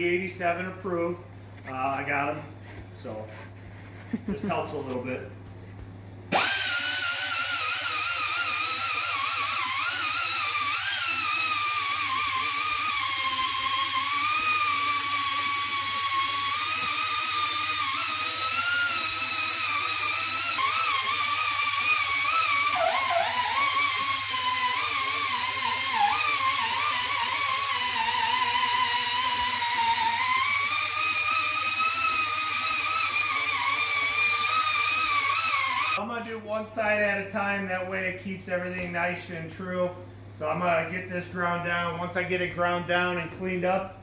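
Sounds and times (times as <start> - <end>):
die grinder grinding metal: 6.3 - 36.0.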